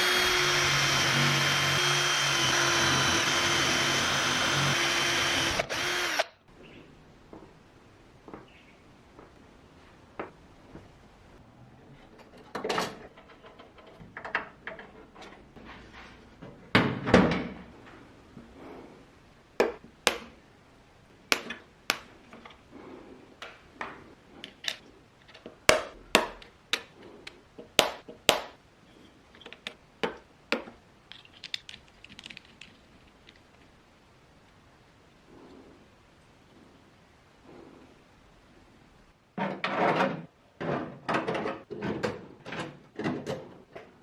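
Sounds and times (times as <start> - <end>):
small hard parts clicking and tapping: 29.3 - 33.8.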